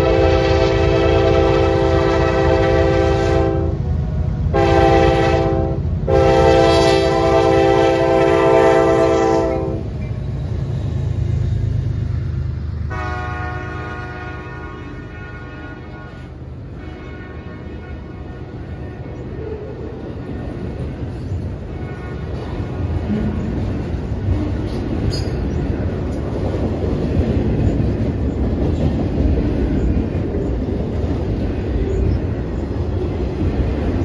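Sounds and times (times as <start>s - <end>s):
locomotive horn blasts: 0.0s - 3.9s, 4.5s - 10.0s, 12.9s - 19.3s, 21.6s - 23.0s
train rumbling past: 0.0s - 34.0s.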